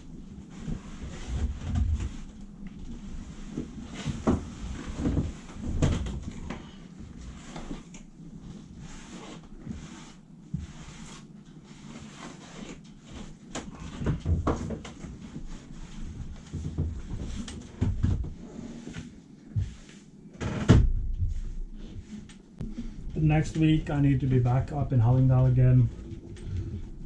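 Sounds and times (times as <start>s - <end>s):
knocks and thumps: 13.8s - 15.1s, 16.4s - 18.4s, 20.4s - 22.8s.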